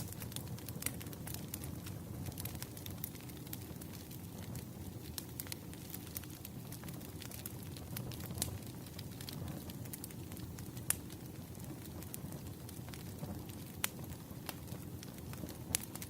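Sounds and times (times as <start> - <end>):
burning logs crackling and popping: 0.0 - 16.0
low rumble of flames: 0.0 - 16.0.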